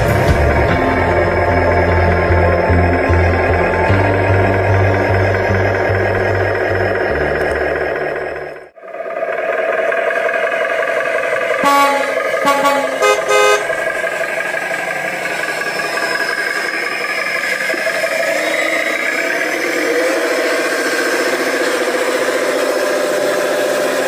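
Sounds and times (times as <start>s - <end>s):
vehicle hum: 0.0s - 24.0s
vehicle horn toots: 11.6s - 13.8s.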